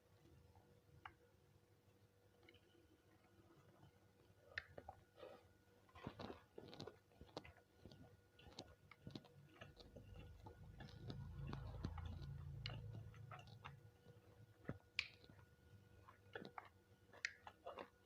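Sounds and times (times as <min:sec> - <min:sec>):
chewing and biting: 0:04.2 - 0:18.0
wet mouth clicks: 0:04.5 - 0:05.0, 0:14.6 - 0:15.4, 0:16.2 - 0:18.0.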